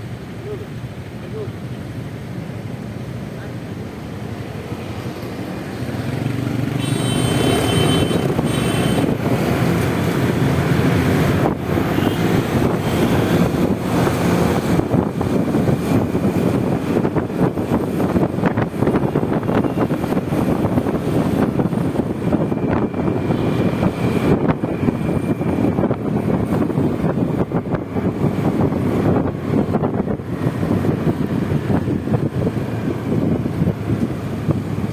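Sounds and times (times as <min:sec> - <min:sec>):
road and wind noise: 0:00.0 - 0:34.9
scooter engine running: 0:05.4 - 0:34.9.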